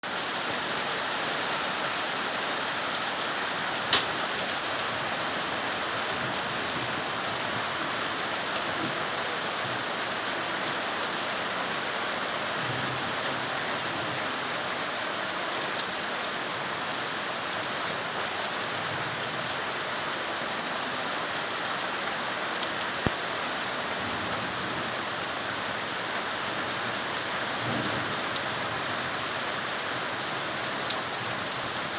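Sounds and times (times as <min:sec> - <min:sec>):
rain pattering: 0:00.1 - 0:16.5, 0:21.2 - 0:31.9
sharp click: 0:03.9 - 0:04.2.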